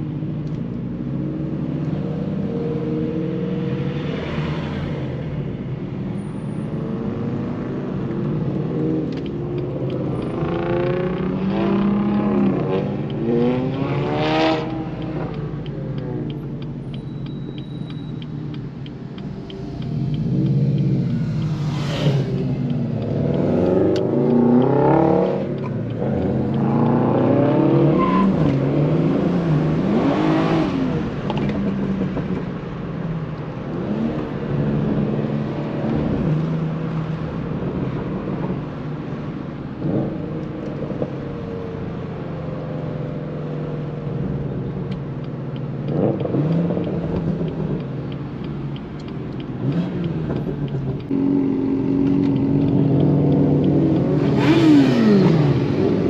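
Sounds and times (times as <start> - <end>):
car engine revving while driving: 0.1 - 17.6, 18.2 - 56.0.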